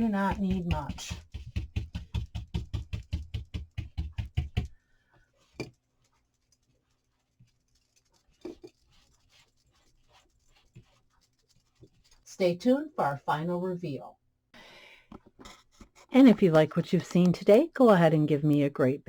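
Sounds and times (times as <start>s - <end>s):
stiff brush scrubbing: 6.0s - 12.3s.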